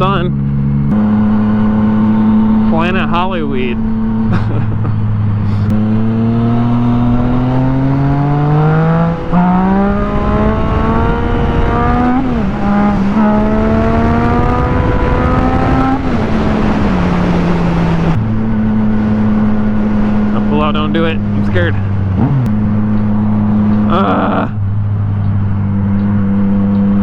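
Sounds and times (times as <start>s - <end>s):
motorcycle engine accelerating: 0.0s - 27.0s
wind over microphone: 9.1s - 20.4s.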